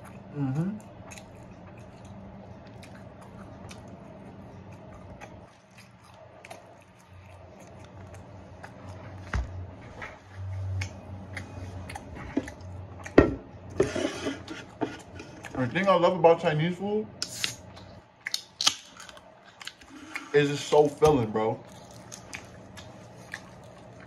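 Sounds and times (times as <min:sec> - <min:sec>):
crunchy chicken being chewed: 0:00.0 - 0:09.4, 0:10.2 - 0:13.2, 0:17.3 - 0:24.0.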